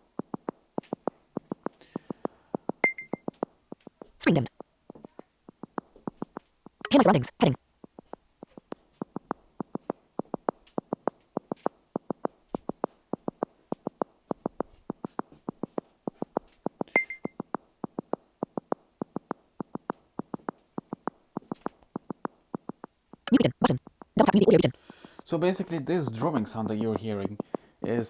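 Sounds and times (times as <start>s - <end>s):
high beep: 2.8s - 3.2s, 17.0s - 17.4s, 23.3s - 24.7s
drumming pulse tone: 22.1s - 24.8s.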